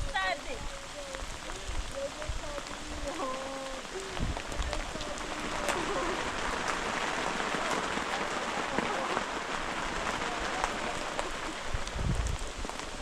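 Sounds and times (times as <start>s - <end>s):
raindrops ticking: 0.0s - 13.0s
steady rain: 0.0s - 13.0s.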